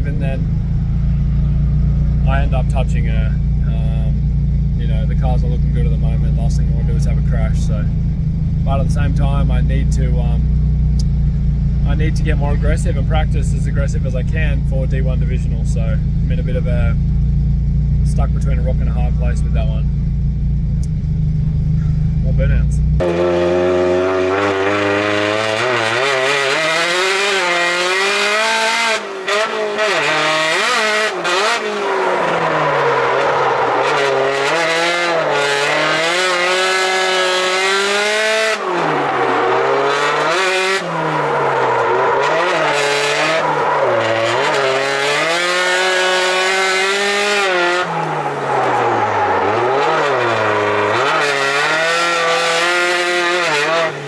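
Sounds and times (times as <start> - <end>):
car engine revving hard: 21.5 - 54.0
tyres squealing: 23.0 - 54.0.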